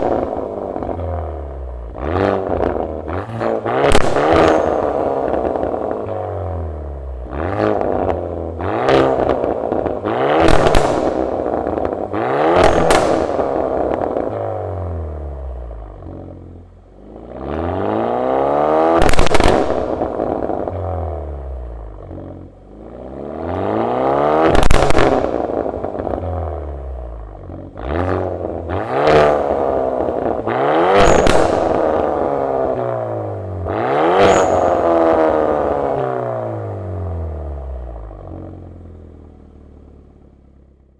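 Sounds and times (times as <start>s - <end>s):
car engine revving: 0.0s - 40.9s
exhaust pops and crackles: 0.0s - 40.9s.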